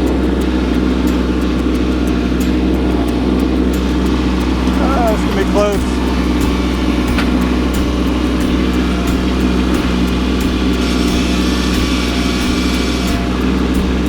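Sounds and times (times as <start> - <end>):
tractor diesel engine running: 0.0 - 14.0
high hiss: 0.1 - 14.0.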